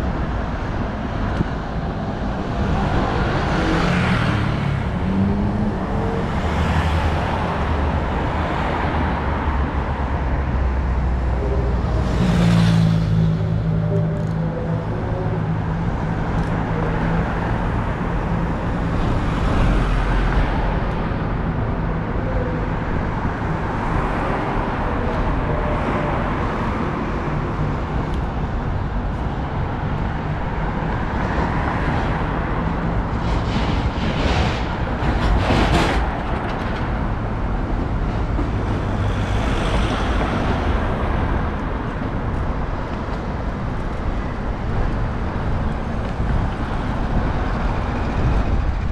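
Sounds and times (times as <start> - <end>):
city road traffic: 0.0 - 48.9.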